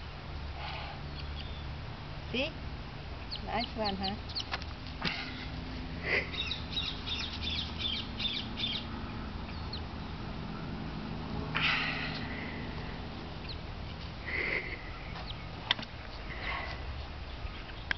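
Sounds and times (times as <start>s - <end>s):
steady low hum: 0.0s - 17.9s
birds chirping: 0.6s - 17.9s.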